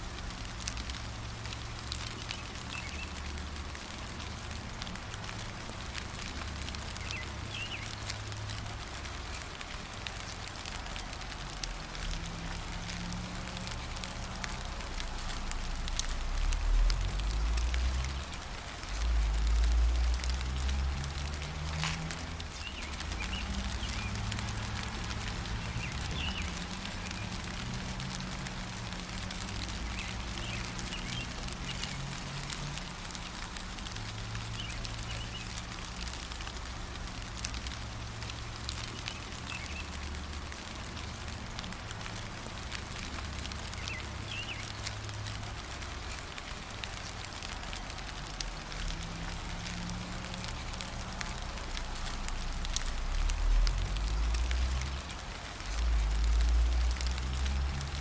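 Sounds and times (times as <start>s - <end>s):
gentle rain pattering: 0.0s - 58.0s
bird chirps: 7.0s - 8.0s.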